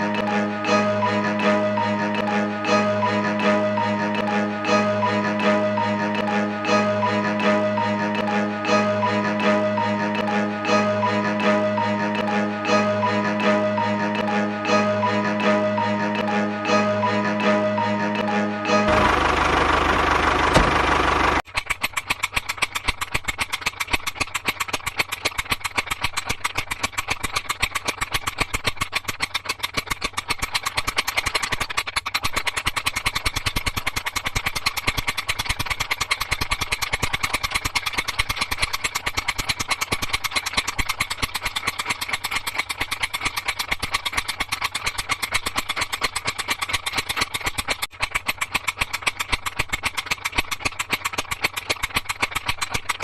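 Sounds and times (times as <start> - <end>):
small engine idling: 0.0 - 53.0
rapid engine knocking: 18.9 - 53.0.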